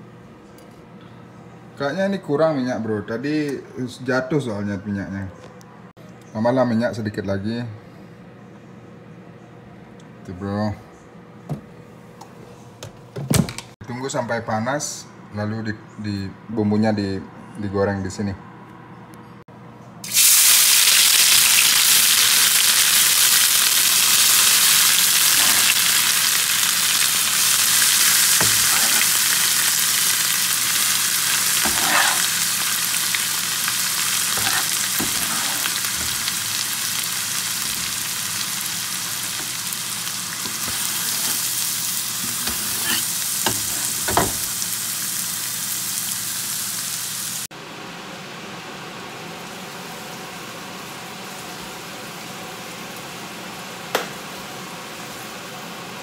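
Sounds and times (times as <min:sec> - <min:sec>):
spice paste sizzling in oil: 0:20.0 - 0:47.5
stirring knocks: 0:34.4 - 0:36.3.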